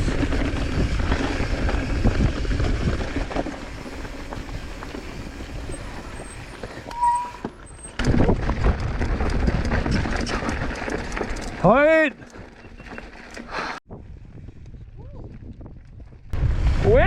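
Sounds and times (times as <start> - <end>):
wind rumble on microphone: 0.0 - 11.6, 13.9 - 17.0
bike rattling: 0.0 - 13.8
tyres crunching over loose rock: 7.5 - 13.5.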